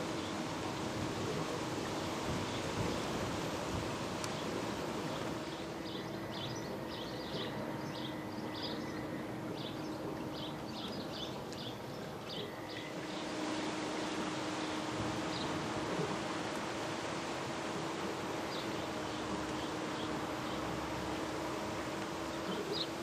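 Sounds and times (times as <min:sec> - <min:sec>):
outdoor noise: 0:00.0 - 0:23.0
small birds chirping: 0:22.2 - 0:23.0.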